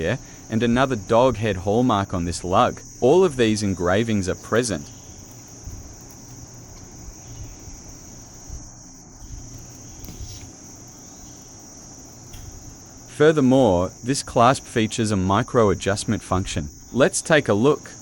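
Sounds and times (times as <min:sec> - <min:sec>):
high-pitched whine or hiss: 0:00.0 - 0:18.0
faint clicks: 0:12.2 - 0:12.7.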